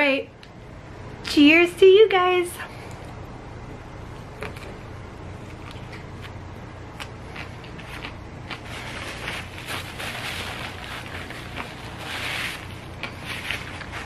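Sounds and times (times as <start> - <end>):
crunchy chewing: 4.1 - 14.0.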